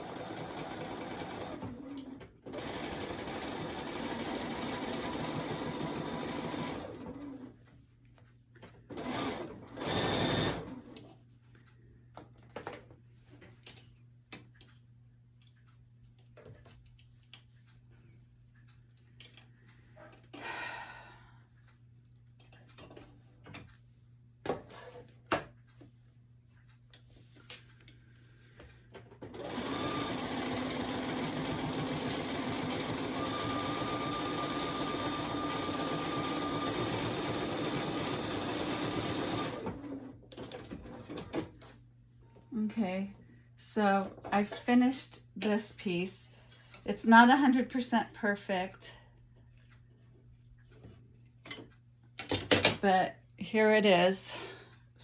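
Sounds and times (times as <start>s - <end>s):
sewing machine running: 0.0s - 7.6s, 8.9s - 11.0s, 29.2s - 41.3s.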